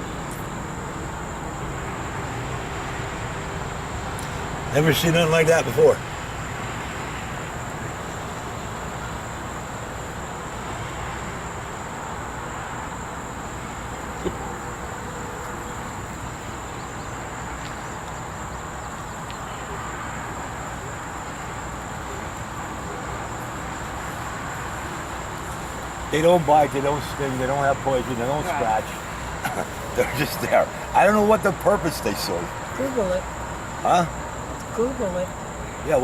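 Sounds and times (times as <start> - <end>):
high-pitched insect drone: 23.2 - 36.0.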